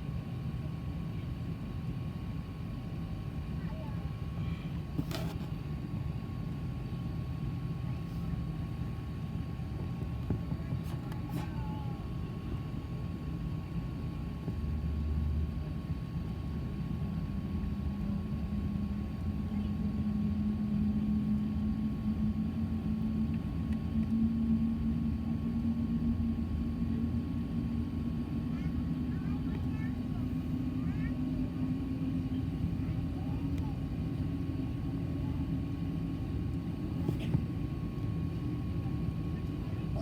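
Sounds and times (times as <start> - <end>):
aircraft engine rumble in cabin: 0.0 - 40.0.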